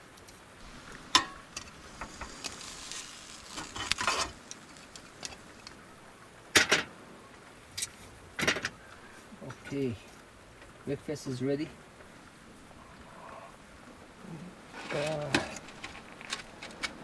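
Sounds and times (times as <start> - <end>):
bread sizzling in a pan: 0.0 - 6.0.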